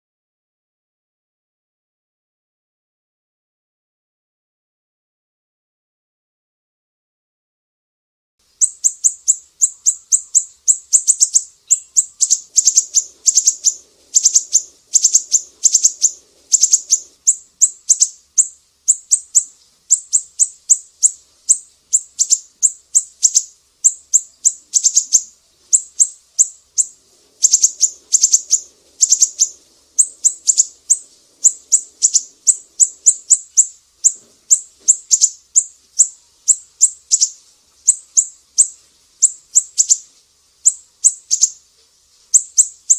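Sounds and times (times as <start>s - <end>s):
bird singing high sharp chirps: 8.6s - 41.6s, 42.3s - 42.9s.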